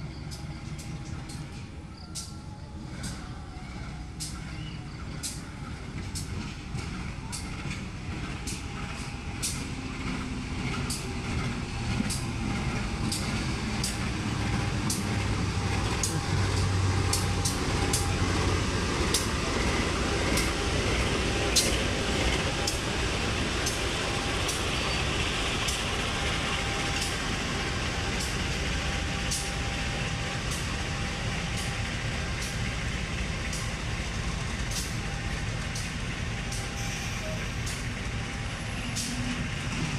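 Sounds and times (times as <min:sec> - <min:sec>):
sharp clicks of train wheels: 0:00.0 - 0:02.4, 0:04.1 - 0:39.9
train rumbling past: 0:00.0 - 0:39.9.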